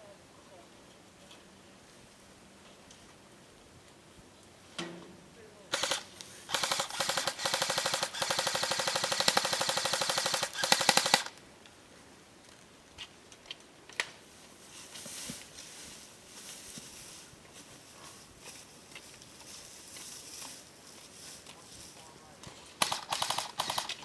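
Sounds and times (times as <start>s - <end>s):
airsoft gun firing: 5.7s - 11.4s, 22.8s - 24.0s.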